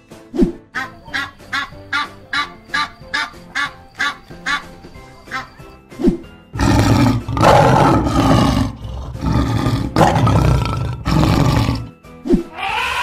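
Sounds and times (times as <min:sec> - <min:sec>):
lion roaring: 0:06.6 - 0:11.9.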